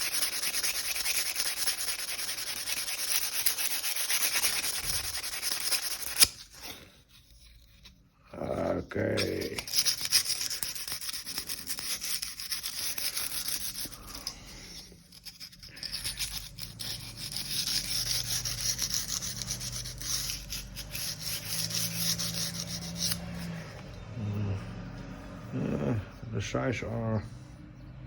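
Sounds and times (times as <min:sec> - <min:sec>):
stone rubbing on knife steel: 0:00.0 - 0:27.0.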